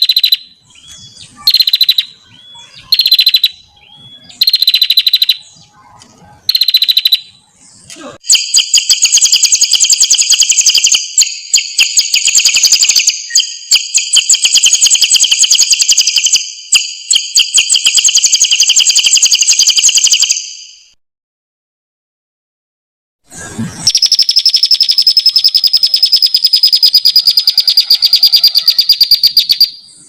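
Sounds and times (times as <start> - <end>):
songbird trilling: 0.0 - 5.8, 6.4 - 7.4, 23.9 - 30.0.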